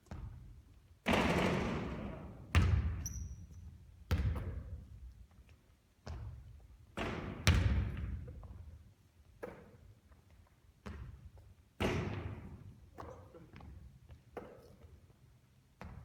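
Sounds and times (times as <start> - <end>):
basketball bouncing on court: 0.1 - 4.9, 6.0 - 8.6, 10.8 - 14.8, 15.8 - 16.0.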